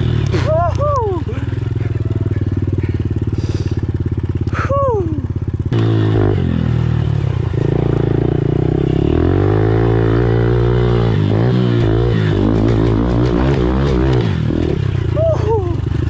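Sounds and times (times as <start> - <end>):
motorbike engine revving: 0.0 - 16.0.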